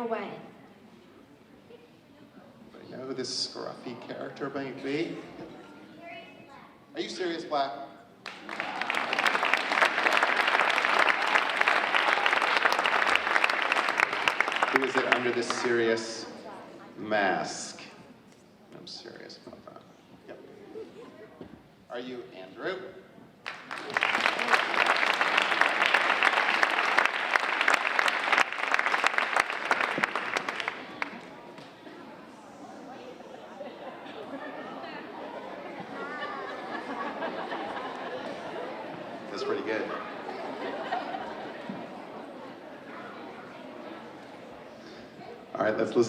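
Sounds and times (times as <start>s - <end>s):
audience applauding: 8.2s - 16.2s, 23.4s - 31.7s.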